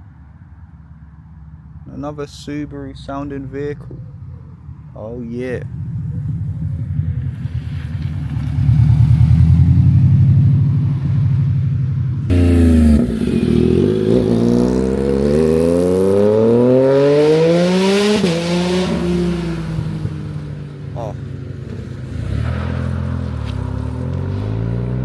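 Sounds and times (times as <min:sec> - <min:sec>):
car engine rumbling: 0:00.0 - 0:25.0
vehicle accelerating hard: 0:05.7 - 0:25.0.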